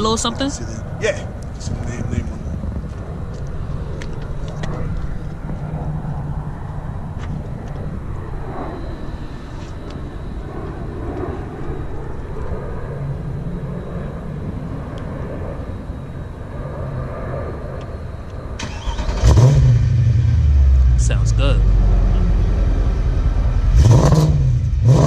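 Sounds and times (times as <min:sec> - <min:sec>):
low engine rumble: 0:00.0 - 0:25.0
car engine starting and idling: 0:18.6 - 0:25.0.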